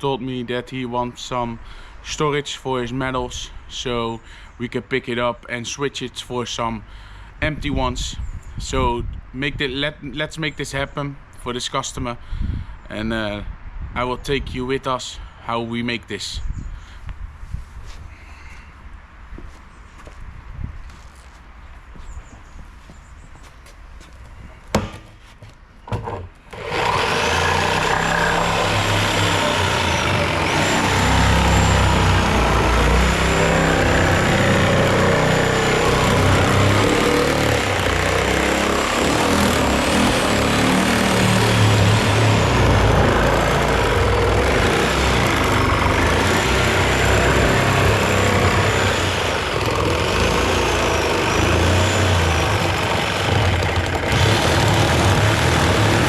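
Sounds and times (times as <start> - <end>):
vehicle engine running: 26.6 - 56.0.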